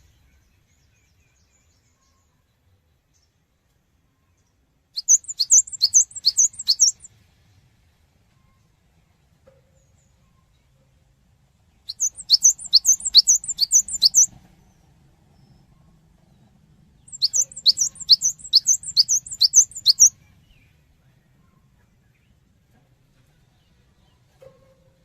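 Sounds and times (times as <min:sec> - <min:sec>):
bird singing whistled notes: 0:05.0 - 0:07.1, 0:11.9 - 0:14.3, 0:17.0 - 0:20.7.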